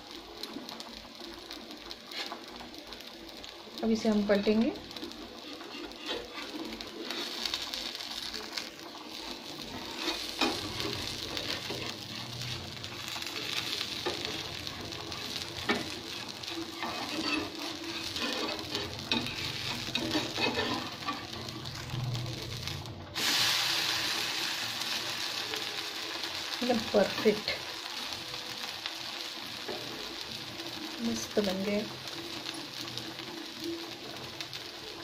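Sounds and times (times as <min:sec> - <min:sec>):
batter sizzling in oil: 0:00.0 - 0:35.0
spatula scraping and tapping: 0:05.4 - 0:07.3, 0:16.8 - 0:21.3.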